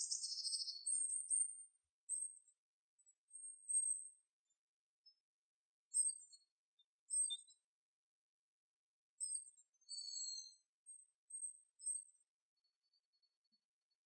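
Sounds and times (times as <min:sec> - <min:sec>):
small songbirds chirping: 0:00.0 - 0:05.3, 0:05.9 - 0:07.8, 0:09.2 - 0:14.0.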